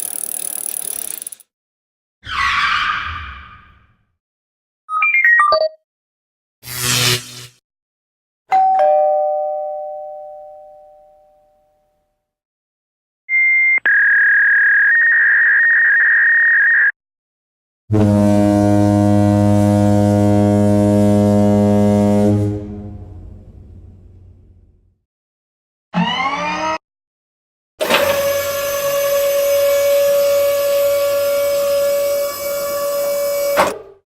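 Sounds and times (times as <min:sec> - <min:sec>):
two-note doorbell chime: 0:08.5 - 0:11.9
loud low buzz: 0:17.9 - 0:24.8.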